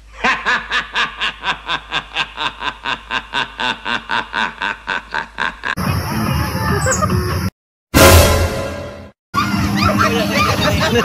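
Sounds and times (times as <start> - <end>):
person laughing: 0.1 - 5.9, 9.8 - 11.0.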